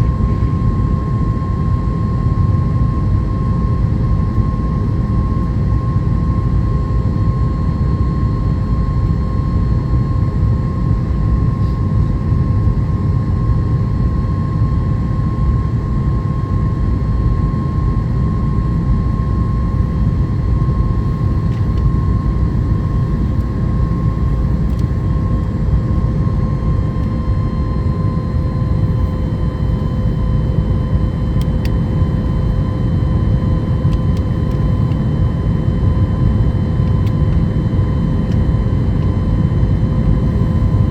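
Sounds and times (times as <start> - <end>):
airplane cabin engine rumble: 0.0 - 40.9
constant hum tone: 0.0 - 40.9.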